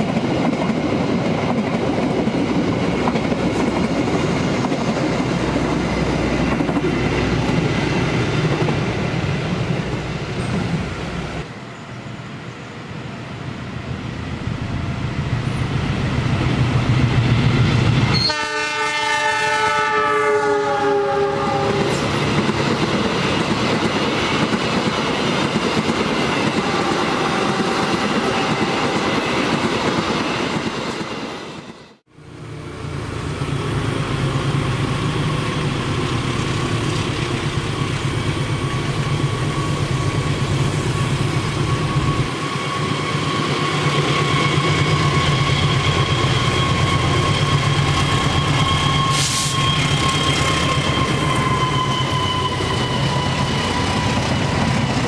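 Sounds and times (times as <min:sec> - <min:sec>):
train rumbling over rails: 0:00.0 - 0:55.0
train chord horn blast: 0:18.1 - 0:22.2.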